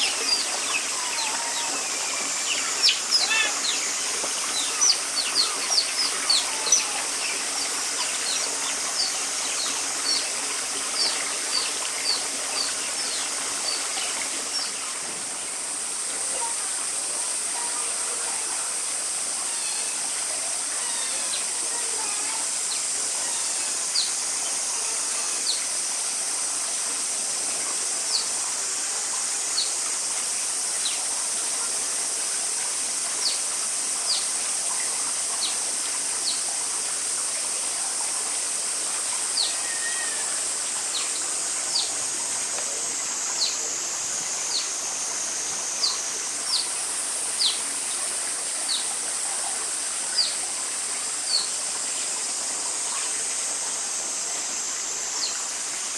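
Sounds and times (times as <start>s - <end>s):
otters chirping: 0.0s - 7.0s
steady high-pitched hiss: 0.0s - 55.9s.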